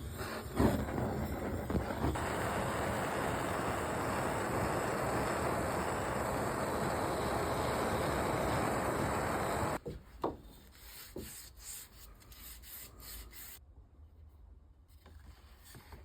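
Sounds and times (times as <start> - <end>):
sanding wood by hand: 10.7 - 13.6.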